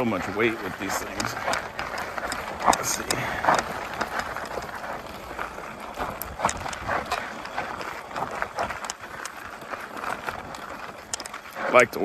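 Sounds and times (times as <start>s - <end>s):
tools clunking on bike: 0.0s - 9.4s
bike tyres crunching on dirt: 0.0s - 12.0s.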